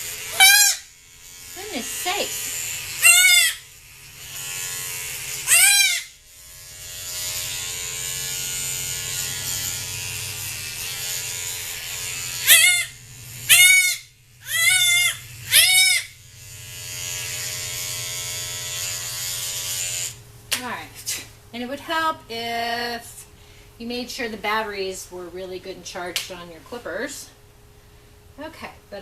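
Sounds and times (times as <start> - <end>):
hair clippers buzzing: 0.0 - 20.7
goat kid bleating: 3.0 - 3.6, 5.5 - 6.1, 12.5 - 12.9, 13.5 - 16.1.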